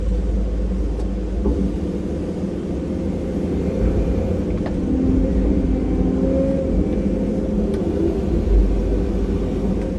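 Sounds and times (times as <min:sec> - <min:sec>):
diesel machinery rumbling: 0:00.0 - 0:09.9.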